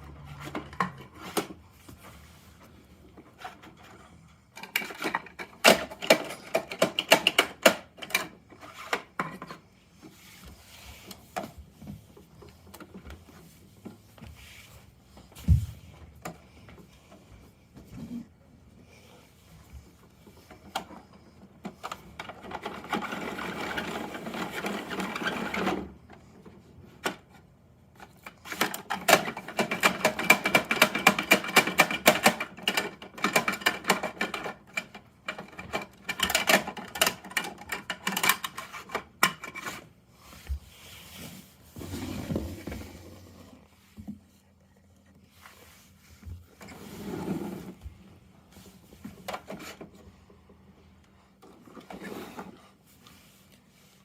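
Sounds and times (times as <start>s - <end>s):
plastic toy parts rattling: 28.4s - 39.8s.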